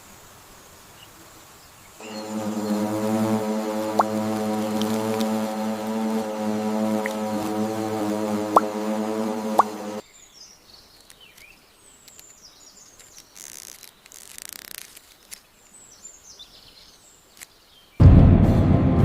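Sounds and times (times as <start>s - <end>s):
small birds chirping: 0.9s - 18.0s
music: 2.0s - 10.0s, 18.0s - 19.0s.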